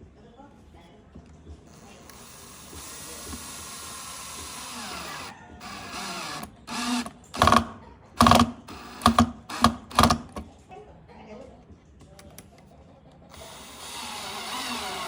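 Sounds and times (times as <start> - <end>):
electric power tool whining: 1.7 - 10.4, 13.3 - 15.0.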